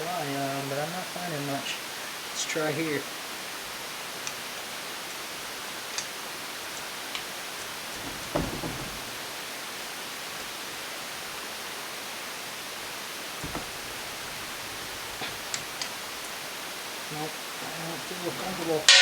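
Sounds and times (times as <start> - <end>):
steady hiss: 0.0 - 19.0
screwdriver knocking on metal: 8.0 - 9.2, 13.4 - 15.9.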